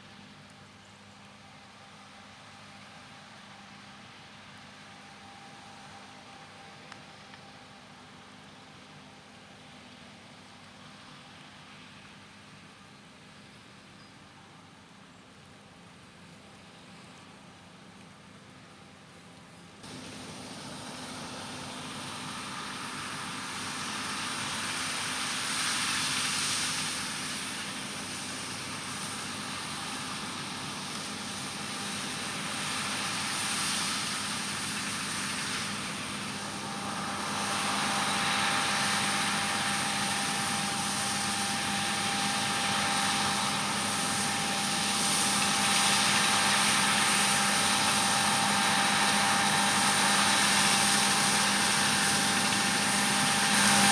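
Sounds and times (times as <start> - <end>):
farm machinery engine hum: 0.0 - 53.9.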